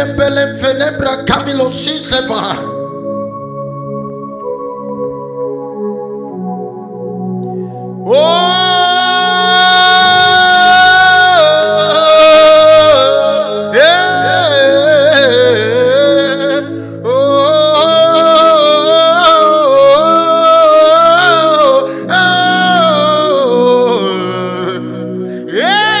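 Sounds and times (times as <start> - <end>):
person singing wordless notes: 0.0 - 26.0
sustained backing chords: 0.0 - 26.0.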